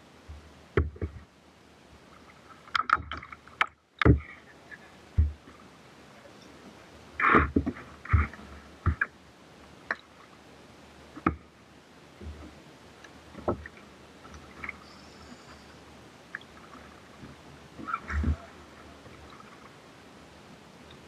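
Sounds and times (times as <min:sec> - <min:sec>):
paddle splashing in water: 0:07.2 - 0:09.2, 0:16.3 - 0:19.8.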